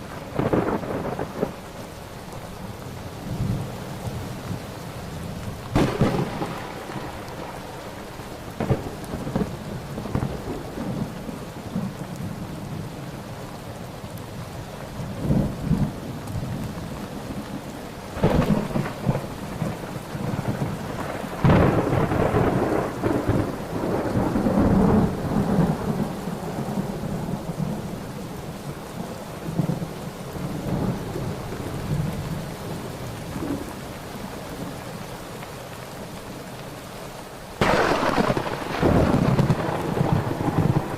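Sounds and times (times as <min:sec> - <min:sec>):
rolling thunder rumble: 0:00.0 - 0:01.7, 0:03.2 - 0:13.0, 0:15.1 - 0:28.7, 0:37.6 - 0:40.9
steady rain: 0:00.0 - 0:40.9
thunder cracks: 0:00.3 - 0:01.6, 0:05.7 - 0:11.2, 0:18.2 - 0:27.3, 0:37.6 - 0:40.9.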